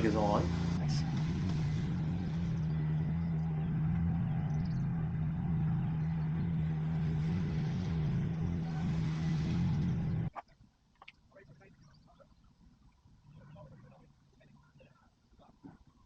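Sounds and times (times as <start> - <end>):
engine hum: 0.0 - 10.3.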